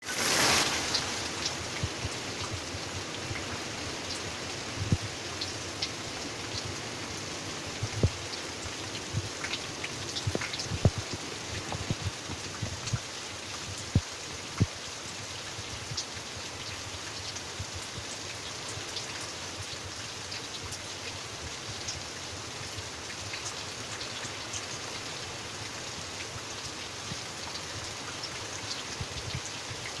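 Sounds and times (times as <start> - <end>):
rain hiss: 0.0 - 30.0
drops dripping on a surface: 7.8 - 14.8.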